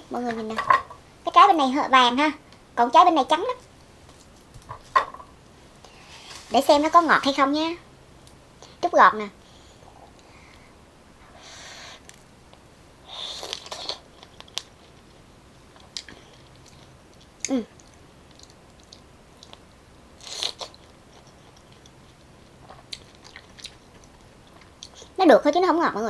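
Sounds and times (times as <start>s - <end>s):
chewing and mouth clicks: 15.8s - 19.6s, 20.3s - 25.0s.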